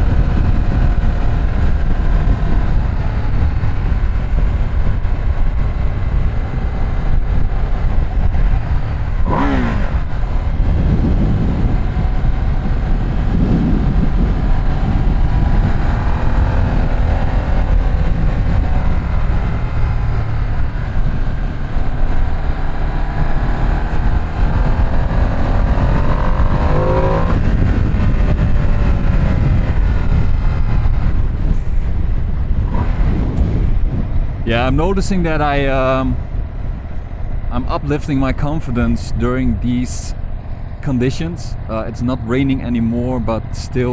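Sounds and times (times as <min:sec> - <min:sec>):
motorcycle engine accelerating: 0:00.0 - 0:34.9
wind on microphone: 0:00.0 - 0:43.9.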